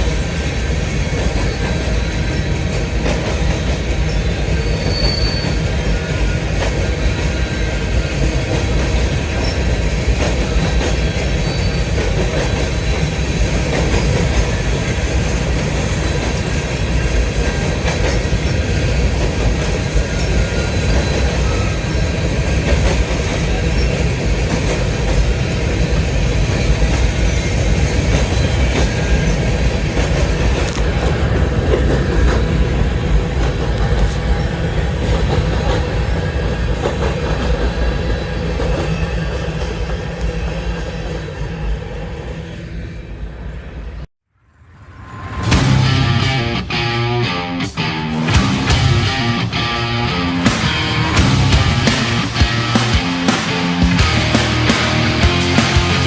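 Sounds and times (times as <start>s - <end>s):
train wheels rumbling on rail: 0.0s - 44.0s, 44.8s - 56.0s
thin wheel squeal: 4.8s - 5.6s.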